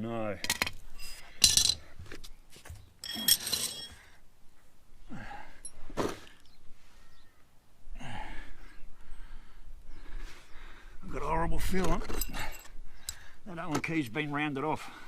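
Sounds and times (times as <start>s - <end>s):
steel tools clinking on metal: 1.0s - 1.8s, 3.0s - 4.0s, 12.0s - 12.8s.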